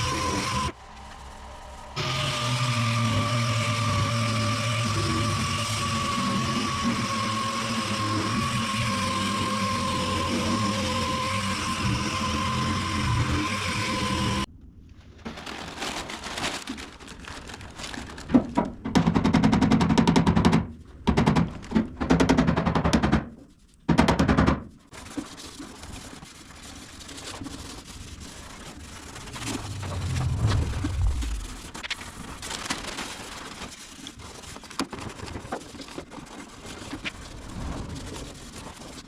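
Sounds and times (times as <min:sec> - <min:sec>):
sander working on car panels: 0:02.0 - 0:14.5.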